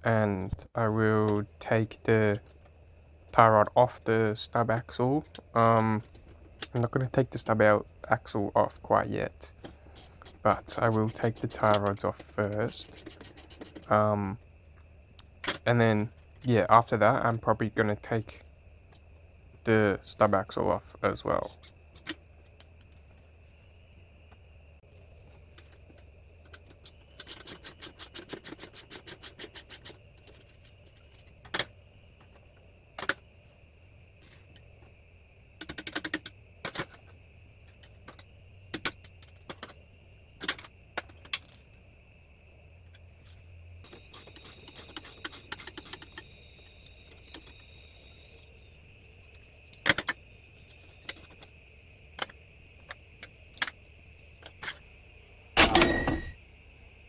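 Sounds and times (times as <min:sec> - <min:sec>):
metallic clinks of tools: 0:55.6 - 0:56.4.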